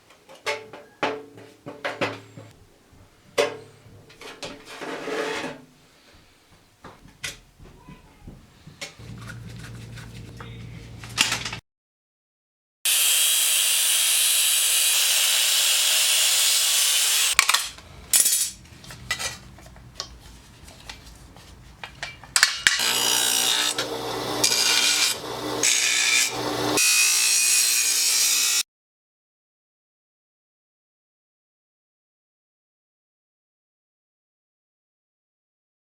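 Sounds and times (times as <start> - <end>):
power tool hissing on metal: 12.9 - 17.4, 22.8 - 26.8
power tool humming: 12.9 - 17.4, 22.8 - 28.6.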